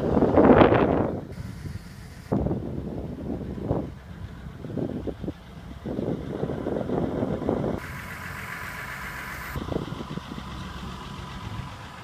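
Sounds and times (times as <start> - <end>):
excavator diesel engine idling: 0.0 - 12.0
hiss: 1.3 - 2.4, 7.8 - 9.6.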